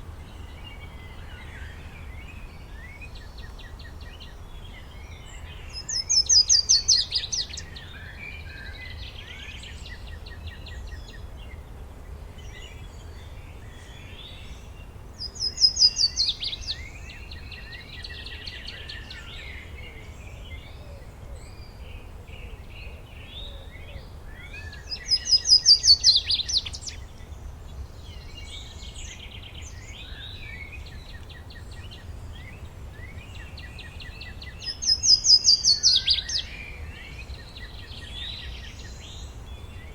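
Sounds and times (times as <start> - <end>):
birds chirping: 12.4 - 39.9
bird singing fast falling trill: 33.2 - 36.6.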